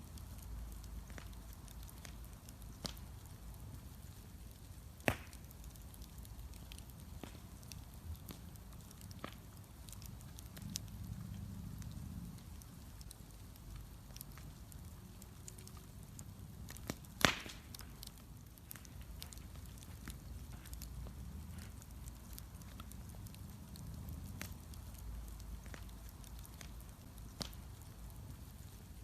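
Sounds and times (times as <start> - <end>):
wood bonfire crackling: 0.0 - 29.0
loud sharp wood snaps: 5.0 - 5.5, 16.8 - 18.1.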